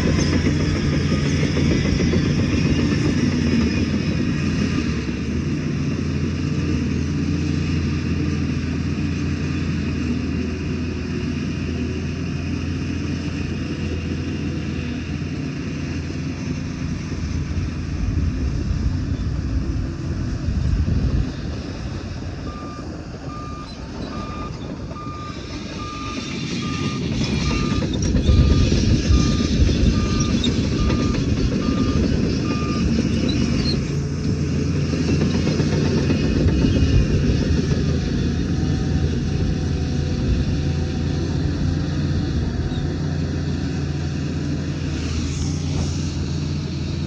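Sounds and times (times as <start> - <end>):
reversing alarm beeping: 0.0 - 2.6, 22.4 - 33.6
heavy diesel engine running: 0.0 - 47.0.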